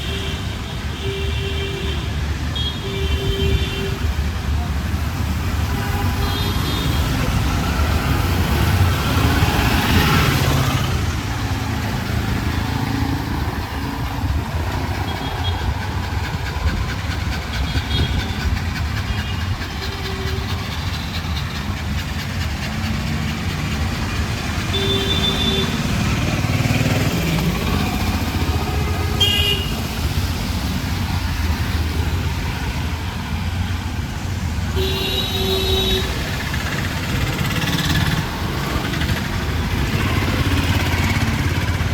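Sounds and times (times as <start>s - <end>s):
vehicle engines running: 2.1s - 41.9s
car horn toots: 24.7s - 25.8s, 28.8s - 29.8s, 34.8s - 36.2s.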